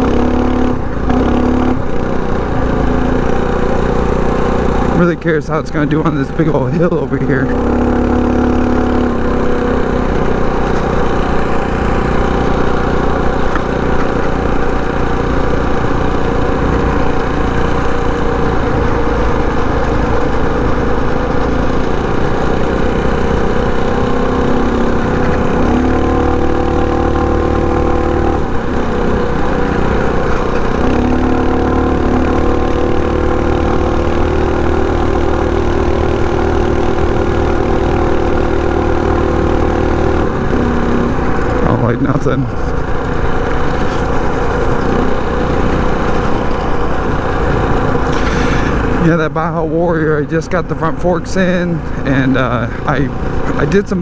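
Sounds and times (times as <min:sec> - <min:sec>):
mini bike engine running hard: 0:00.0 - 0:54.0.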